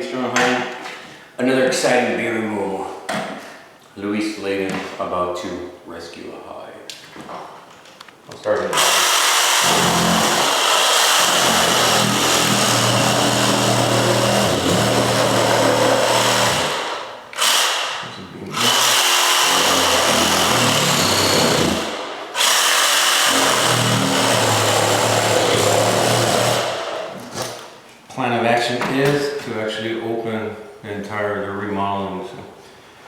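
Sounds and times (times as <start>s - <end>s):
handheld power tool running: 8.8s - 27.0s.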